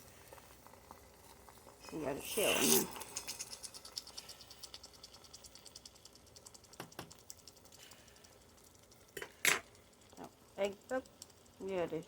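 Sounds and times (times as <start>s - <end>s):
egg sizzling in a frying pan: 0.0s - 12.0s.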